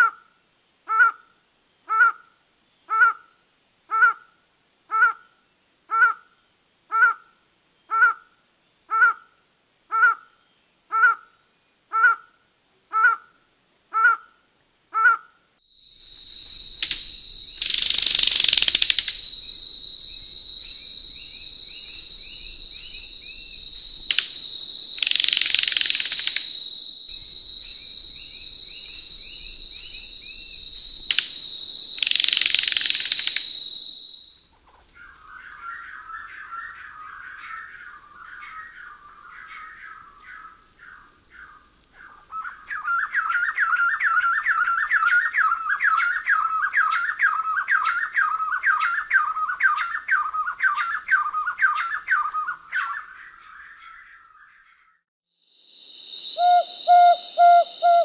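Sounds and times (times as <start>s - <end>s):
faint chirping: 15.6s - 58.0s
high-pitched insect-like drone: 15.7s - 34.2s.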